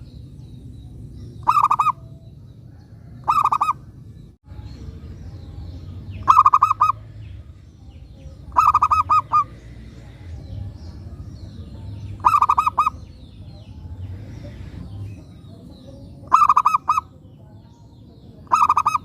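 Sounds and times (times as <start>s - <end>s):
dove cooing: 1.4s - 2.1s, 2.7s - 3.9s, 6.2s - 7.1s, 8.4s - 9.9s, 12.1s - 13.2s, 16.2s - 17.2s, 18.4s - 19.0s.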